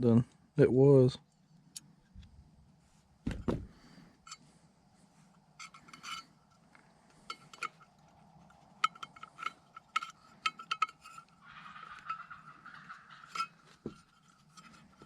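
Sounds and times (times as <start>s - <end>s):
small metal parts clinking: 5.6s - 15.0s.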